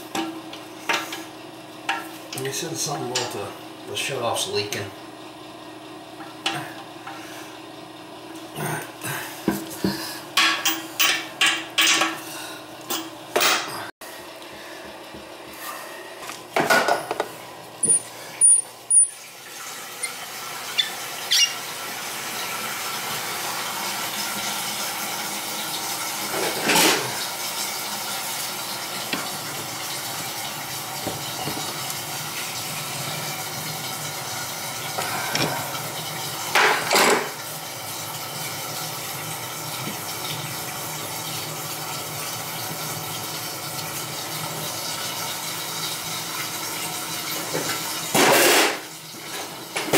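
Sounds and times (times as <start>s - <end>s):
toilet tank refilling: 17.3s - 49.9s.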